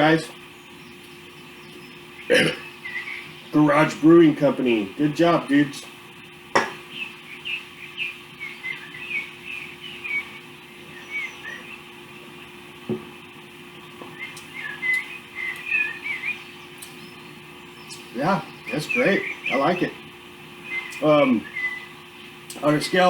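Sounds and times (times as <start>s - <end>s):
birds chirping: 0.0s - 23.0s
steady low hum: 0.0s - 23.0s
faint knock: 12.9s - 13.1s.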